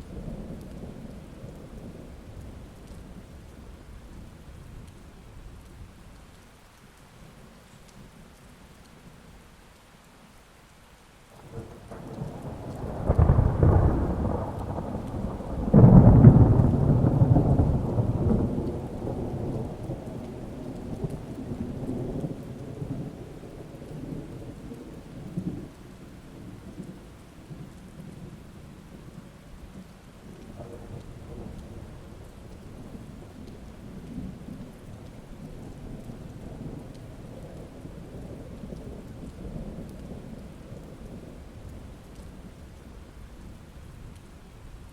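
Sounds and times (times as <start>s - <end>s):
steady rain: 0.0s - 44.9s
loud thunder claps: 11.4s - 25.8s
rolling thunder: 11.4s - 44.2s.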